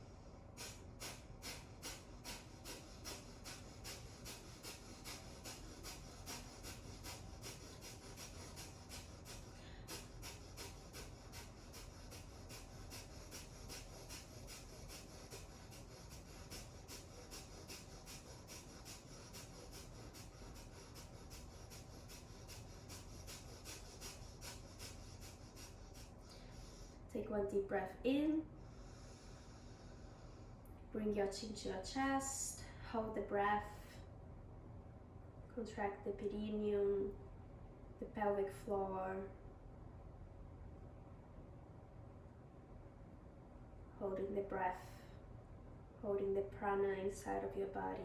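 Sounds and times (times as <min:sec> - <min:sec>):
rapid forceful nasal exhales: 0:00.0 - 0:27.1, 0:28.5 - 0:30.6.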